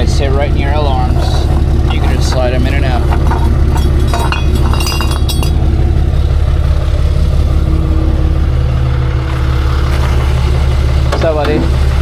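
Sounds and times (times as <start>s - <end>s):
truck engine idling: 0.0s - 12.0s
light metal clinking: 1.8s - 5.7s.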